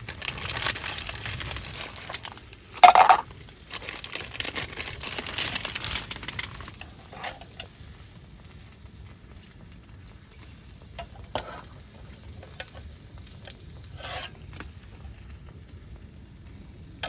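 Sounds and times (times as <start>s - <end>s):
crinkling and rustling handling: 0.0s - 7.9s.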